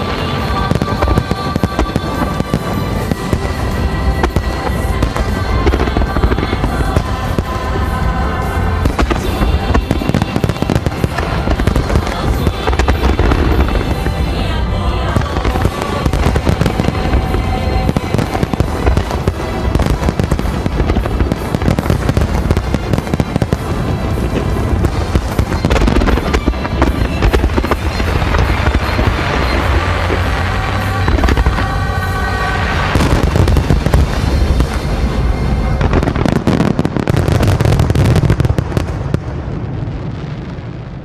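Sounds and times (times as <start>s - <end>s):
fireworks crackling: 0.0s - 41.0s
music playing: 0.0s - 41.0s
fireworks deep booms: 32.6s - 41.0s.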